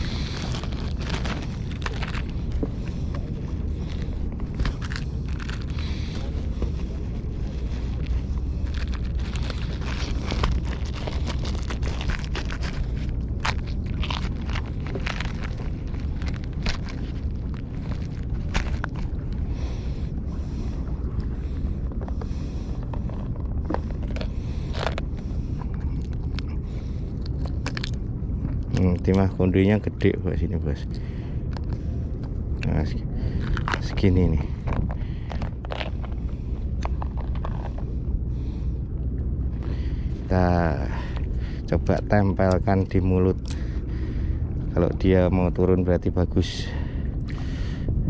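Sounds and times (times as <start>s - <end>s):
microphone handling clicks and rustles: 0.0s - 19.4s, 21.9s - 29.3s, 31.5s - 38.6s
wind buffeting microphone: 0.0s - 48.0s.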